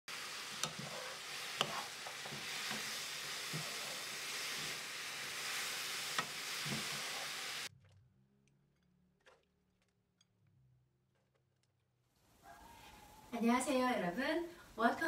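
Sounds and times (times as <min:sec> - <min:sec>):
food sizzling in a frying pan: 0:00.1 - 0:07.7.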